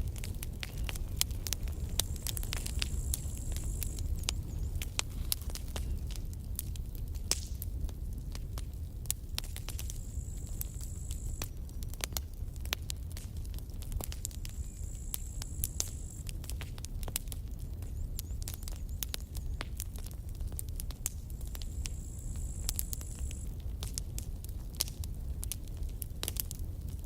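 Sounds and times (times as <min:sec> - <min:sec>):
low rumble of flames: 0:00.0 - 0:27.0
wood crackling and popping: 0:00.0 - 0:27.0.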